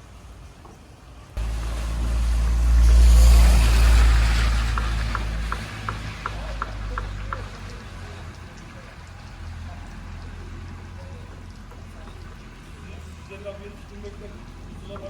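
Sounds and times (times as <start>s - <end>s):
hiss: 1.4s - 7.0s
car engine deep rumble: 1.4s - 12.9s.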